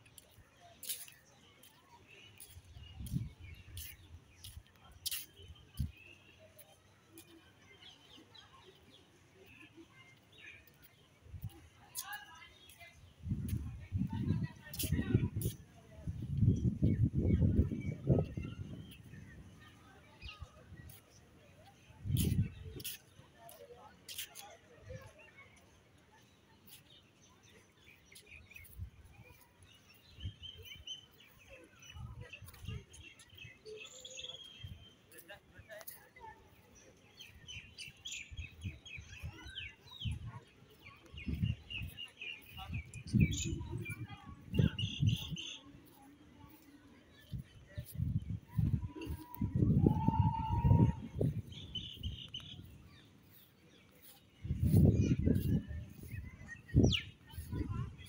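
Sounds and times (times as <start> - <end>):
bird chirps and calls: 0.2 - 8.2, 22.1 - 24.4.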